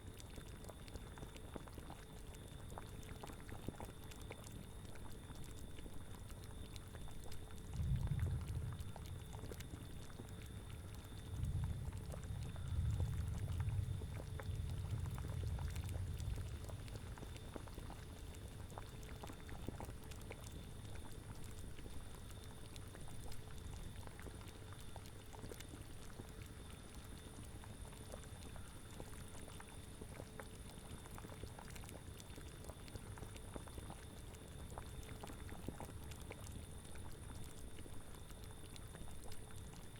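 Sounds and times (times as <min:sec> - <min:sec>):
cauldron bubbling: 0:00.1 - 0:39.9
low rumbling swells: 0:07.7 - 0:09.5, 0:11.3 - 0:17.1.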